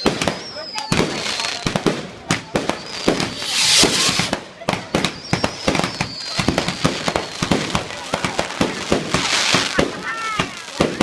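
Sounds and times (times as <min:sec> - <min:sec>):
wavering firework whistle: 0:00.0 - 0:01.6, 0:02.5 - 0:04.4, 0:05.0 - 0:07.6
fireworks bangs and crackles: 0:00.0 - 0:11.0
hissing rush: 0:02.9 - 0:04.6.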